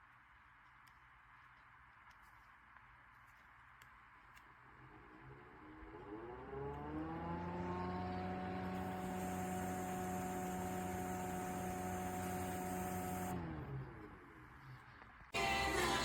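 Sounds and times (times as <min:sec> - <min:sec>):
electric fan motor whining: 0:04.8 - 0:14.6.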